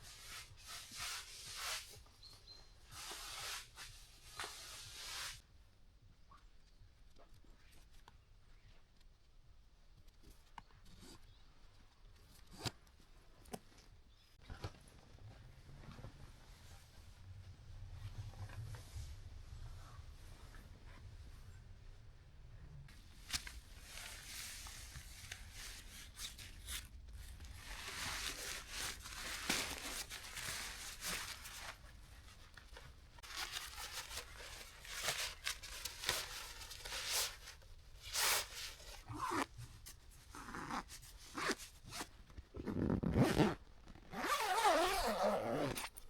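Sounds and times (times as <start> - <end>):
fabric rustling: 22.9 - 46.0
zippers being pulled: 39.1 - 39.5, 40.3 - 46.0.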